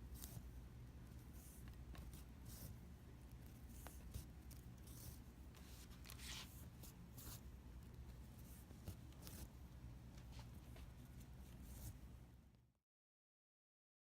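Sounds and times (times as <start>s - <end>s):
faint scratching and rustling: 1.1s - 9.6s.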